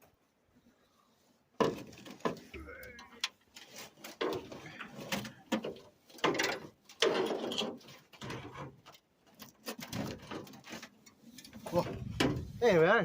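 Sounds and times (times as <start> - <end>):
metal clanks and knocks: 11.4 - 12.6.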